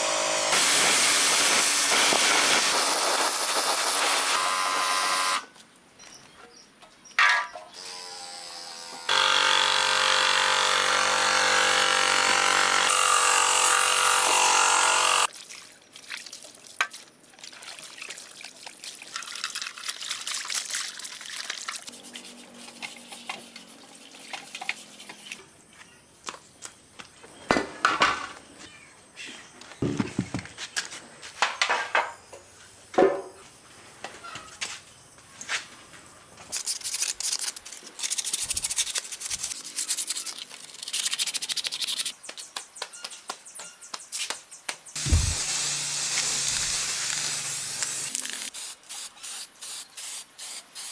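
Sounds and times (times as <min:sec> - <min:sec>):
motor-driven machine running: 0:45.0 - 0:48.1.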